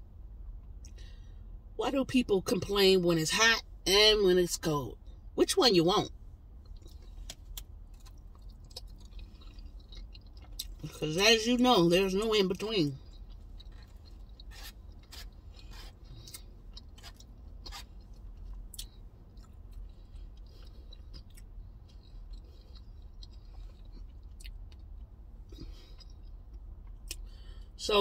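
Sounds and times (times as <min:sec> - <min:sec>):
low steady rumble: 0:00.0 - 0:28.0
person chewing soft food: 0:06.4 - 0:11.0, 0:12.9 - 0:27.6.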